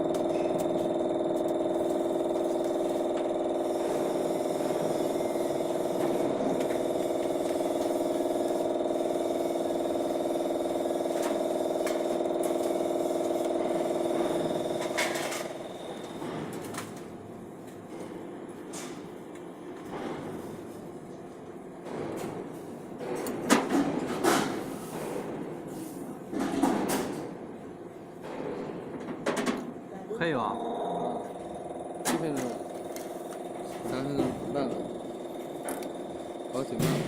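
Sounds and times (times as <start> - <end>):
lathe mechanical whine: 0.0 - 16.3, 30.5 - 37.0.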